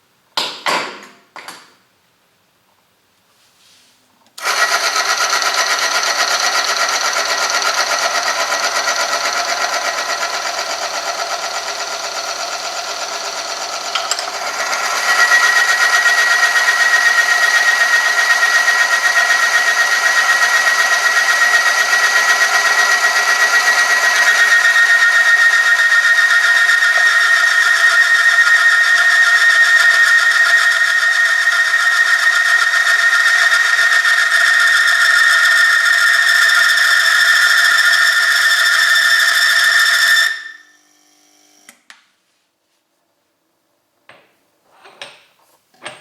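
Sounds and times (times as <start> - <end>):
electric motor whirring: 4.4 - 41.7
metal on metal squeal: 20.7 - 40.8.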